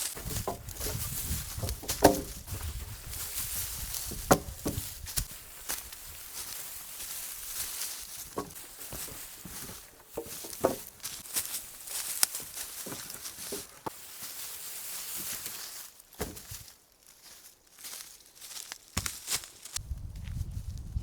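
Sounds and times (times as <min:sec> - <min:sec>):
footsteps on forest litter: 0:00.0 - 0:20.8
sticks snapping: 0:01.6 - 0:02.4.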